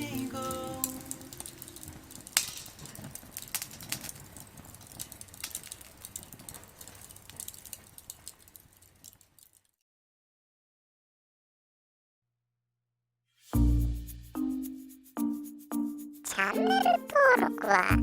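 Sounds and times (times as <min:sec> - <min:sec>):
wood fire crackling and popping: 0:00.0 - 0:09.8.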